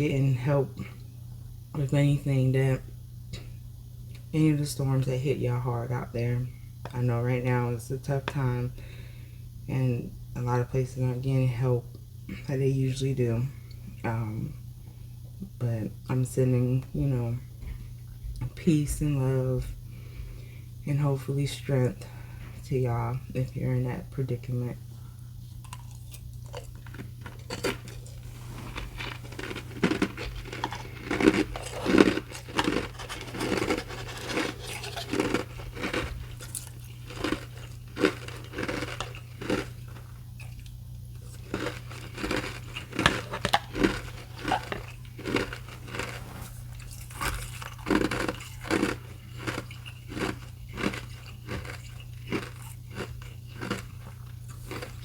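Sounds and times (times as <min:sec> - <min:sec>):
ice being chewed: 0:25.5 - 0:55.0.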